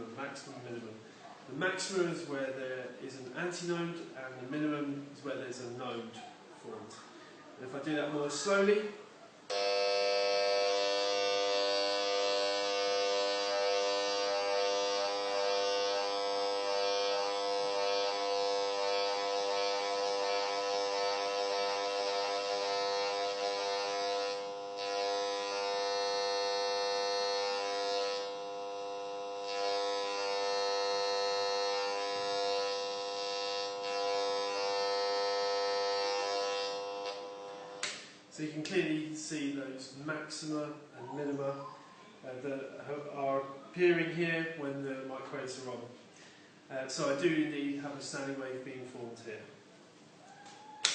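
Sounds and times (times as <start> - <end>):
detector buzzing tone: 9.5 - 38.0.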